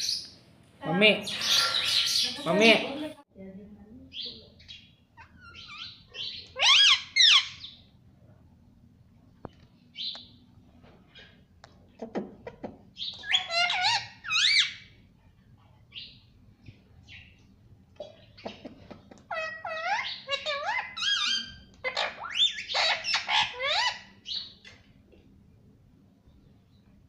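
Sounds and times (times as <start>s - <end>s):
parrot shrill calls: 1.3s - 2.4s, 5.2s - 7.8s, 13.0s - 14.9s, 19.3s - 24.5s.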